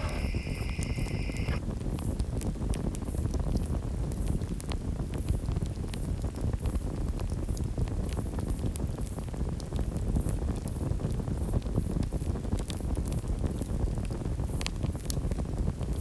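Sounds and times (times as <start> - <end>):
bonfire crackling: 0.0 - 1.6.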